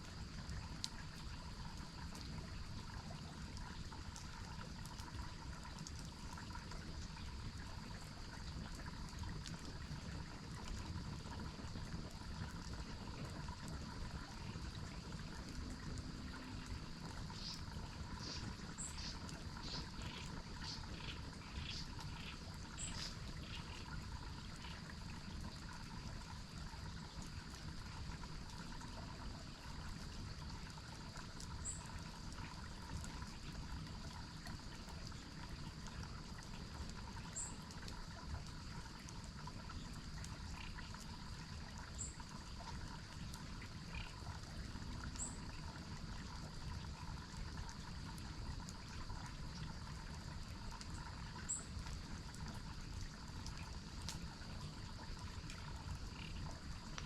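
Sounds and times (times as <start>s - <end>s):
stream water trickling: 0.0s - 57.0s
high insect or frog tones: 15.8s - 24.9s, 43.6s - 44.3s, 45.2s - 45.6s, 51.0s - 51.8s, 53.2s - 57.0s.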